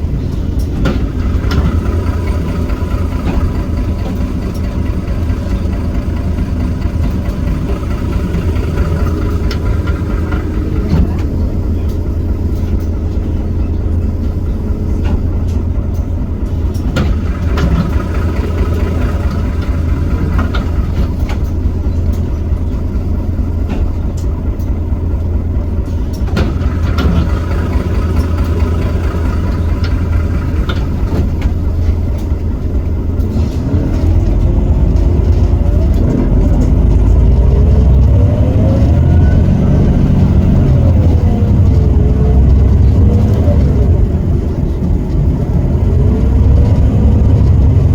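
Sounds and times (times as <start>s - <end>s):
bus diesel engine: 0.0s - 47.9s
sharp engine knocks: 15.0s - 22.6s, 26.1s - 47.9s.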